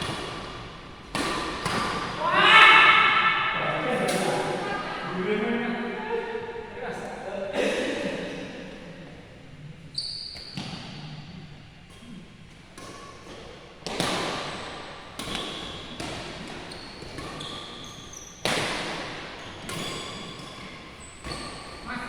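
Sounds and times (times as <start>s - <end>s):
rackets hitting shuttlecock: 0.0s - 2.2s.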